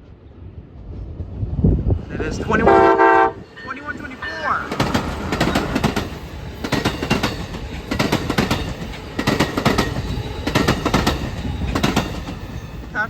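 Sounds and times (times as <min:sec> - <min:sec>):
train rumble: 0:00.0 - 0:13.0
train wheels clacking over rail joints: 0:04.6 - 0:12.9.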